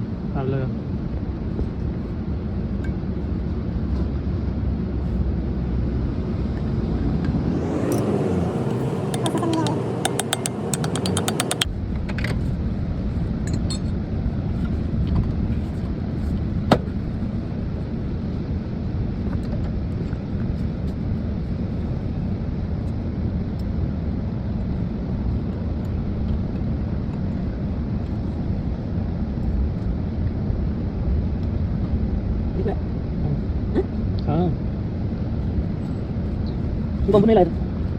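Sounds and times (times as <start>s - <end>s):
low vehicle rumble: 1.0s - 37.9s
sharp click: 9.1s - 11.7s.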